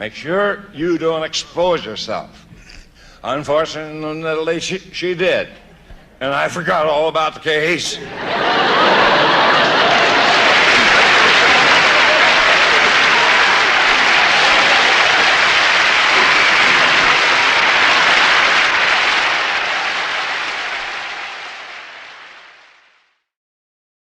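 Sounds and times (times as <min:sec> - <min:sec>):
studio audience applauding: 0:08.2 - 0:23.1.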